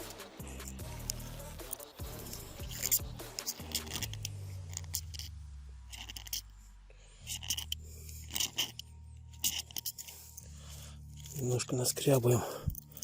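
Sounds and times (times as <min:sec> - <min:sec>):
striker scraping ferrocerium rod: 0:00.0 - 0:06.6, 0:07.2 - 0:10.5.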